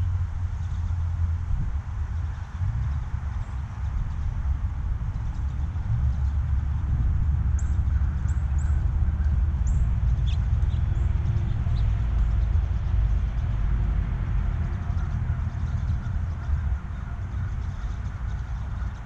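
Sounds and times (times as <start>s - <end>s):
low rumble: 0.0s - 19.0s
small birds chirping: 7.6s - 13.6s.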